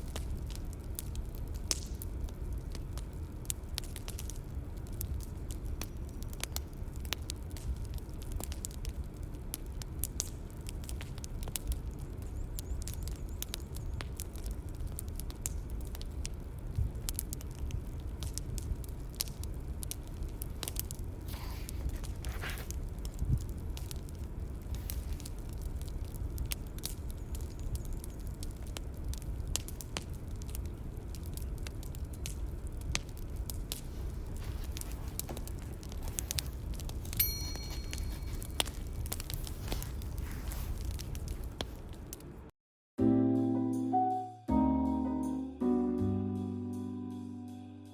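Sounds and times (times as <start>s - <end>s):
bonfire crackling: 0.0s - 42.5s
soft rustle: 20.0s - 26.5s, 32.9s - 42.3s.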